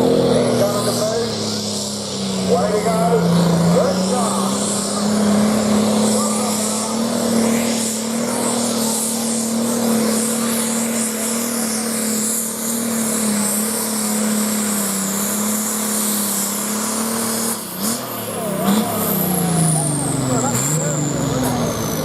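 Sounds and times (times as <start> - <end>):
tractor diesel engine at full load: 0.0 - 22.0.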